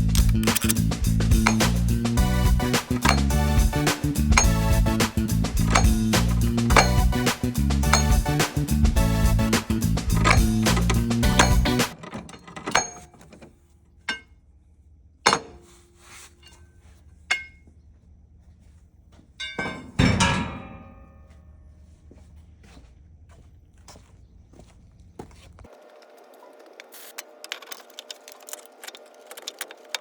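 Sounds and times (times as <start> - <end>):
metal tools knocking and clinking: 0.0 - 0.8, 1.4 - 1.8, 2.9 - 3.4, 4.4 - 4.7, 5.6 - 6.1, 6.7 - 7.1, 7.9 - 8.3, 10.1 - 13.4, 14.1 - 14.3, 17.3 - 17.6, 19.4 - 21.2
background music: 0.0 - 12.0.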